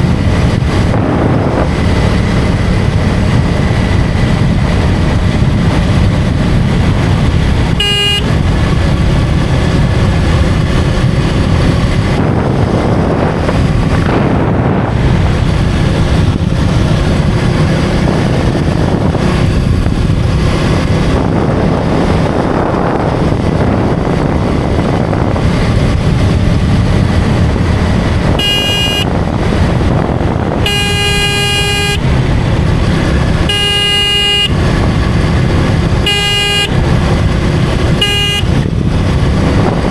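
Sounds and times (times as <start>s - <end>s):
motorcycle engine running: 0.0s - 39.9s
wind rush: 0.0s - 39.9s
vehicle horn honking: 7.7s - 8.4s, 28.3s - 29.3s, 30.5s - 32.1s, 33.4s - 34.8s, 36.0s - 36.9s, 37.9s - 38.7s.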